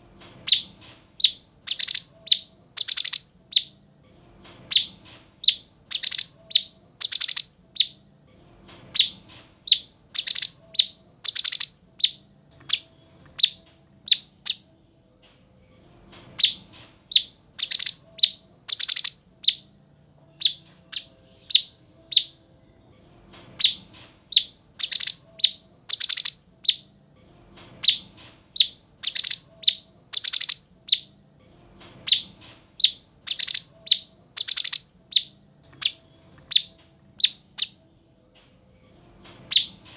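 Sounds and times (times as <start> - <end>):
songbird chirping and rasping: 0.4 - 3.8, 4.6 - 8.0, 8.9 - 14.6, 16.3 - 19.7, 20.3 - 22.4, 23.5 - 26.9, 27.7 - 31.1, 32.0 - 37.8.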